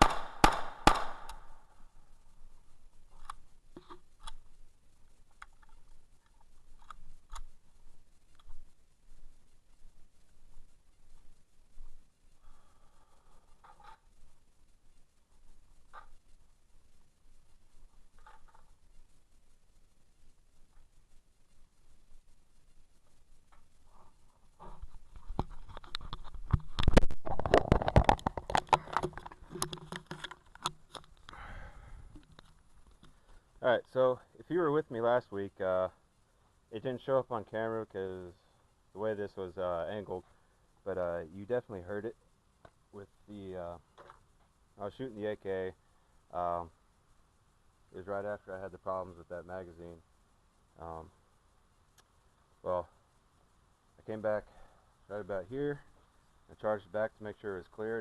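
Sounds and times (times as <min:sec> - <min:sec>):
handling noise clicks and knocks: 0:24.6 - 0:31.4.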